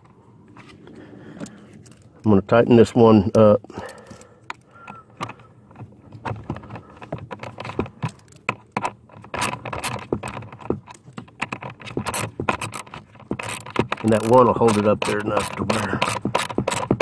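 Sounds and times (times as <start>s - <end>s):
hand ratchet clicking: 7.4s - 17.0s.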